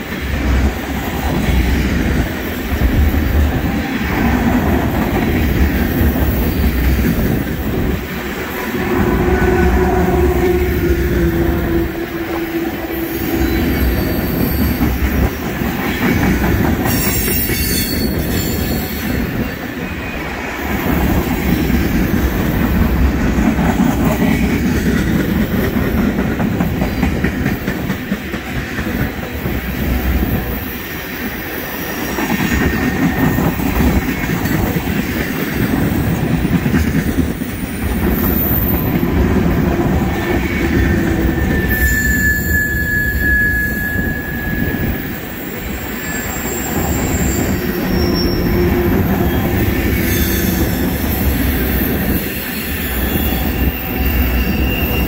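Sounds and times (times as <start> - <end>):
freight train wheels rumbling: 0.0 - 55.0
wheel squeal: 41.4 - 44.9, 45.7 - 50.8, 52.1 - 55.0.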